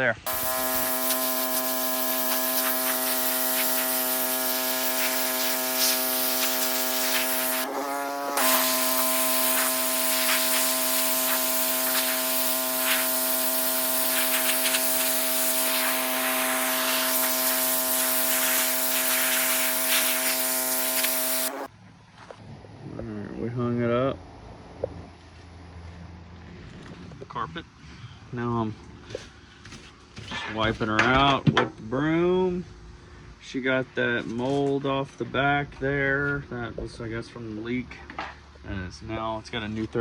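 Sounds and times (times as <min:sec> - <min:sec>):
pressure washer hissing spray: 0:00.3 - 0:21.7
pressure washer pump motor: 0:00.3 - 0:21.7.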